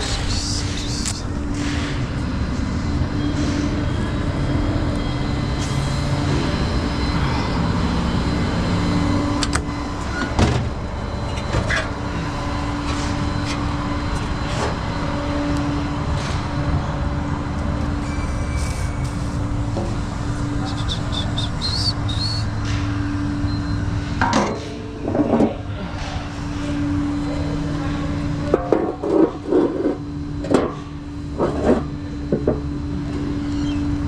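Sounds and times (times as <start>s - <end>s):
truck engine running: 0.0s - 24.2s.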